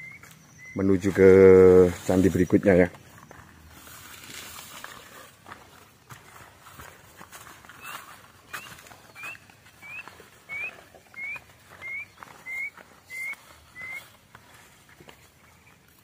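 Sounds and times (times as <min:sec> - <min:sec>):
bird whistling: 0:00.0 - 0:00.8, 0:07.8 - 0:14.1.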